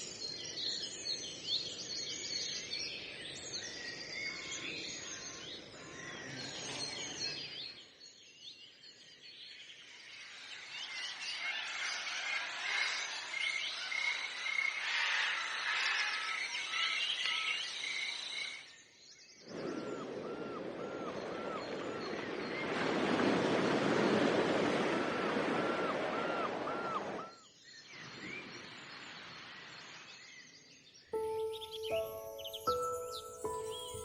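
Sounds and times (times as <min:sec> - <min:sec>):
birds singing and chirping: 0:13.4 - 0:22.8, 0:30.1 - 0:34.0.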